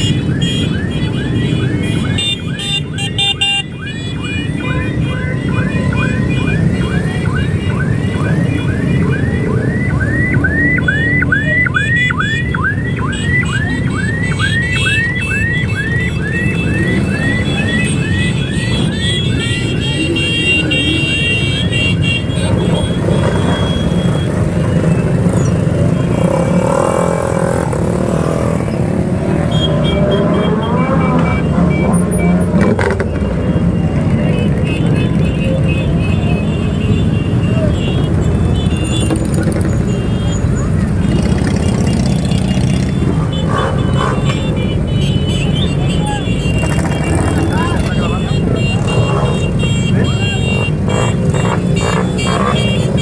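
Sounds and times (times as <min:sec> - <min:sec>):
electronic siren yelping: 0:00.0 - 0:34.6
motorcycle engines running: 0:00.0 - 0:53.0.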